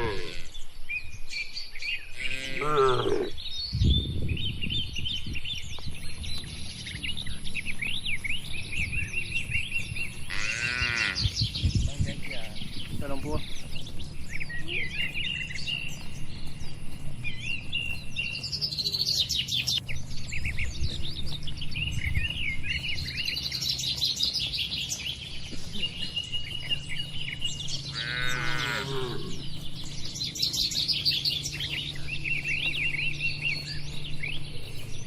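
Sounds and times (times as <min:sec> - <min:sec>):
livestock animal call: 0:00.0 - 0:00.7, 0:02.1 - 0:03.4, 0:10.1 - 0:11.4, 0:27.7 - 0:29.6
small birds chirping: 0:00.0 - 0:35.0
steady low hum: 0:03.3 - 0:35.0.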